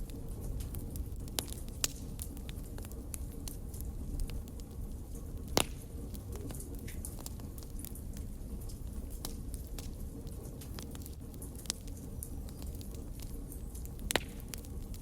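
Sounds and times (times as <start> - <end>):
wood fire crackling: 0.0 - 15.0
sharp pop from fire: 1.4 - 2.3, 5.5 - 7.0, 14.0 - 14.8.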